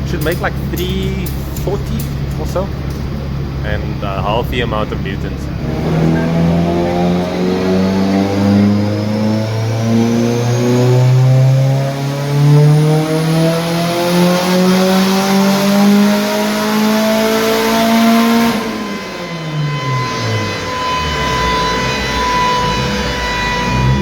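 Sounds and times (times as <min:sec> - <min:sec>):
car engine revving at full throttle: 0:00.0 - 0:24.0
high-pitched whine: 0:00.0 - 0:24.0.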